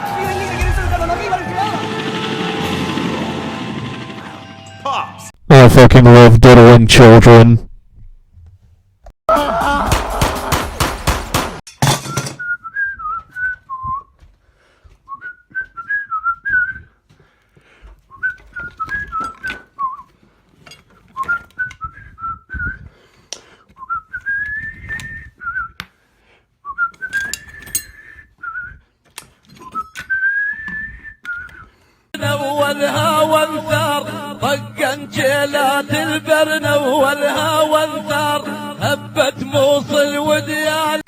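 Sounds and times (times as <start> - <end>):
person whistling a tune: 12.1 - 14.2, 15.1 - 17.0, 18.1 - 20.1, 21.2 - 22.9, 23.8 - 25.8, 26.6 - 28.9, 29.6 - 31.8.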